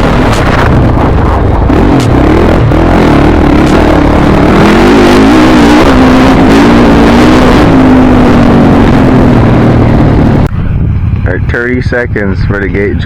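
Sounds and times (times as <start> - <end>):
dirt bike engines running: 10.5 - 13.0.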